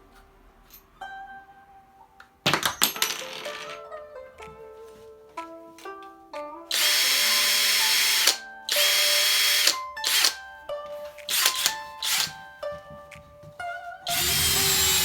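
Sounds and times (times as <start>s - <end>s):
background music: 0.0s - 15.0s
cordless drill running: 6.7s - 10.4s, 11.3s - 12.4s, 14.1s - 15.0s.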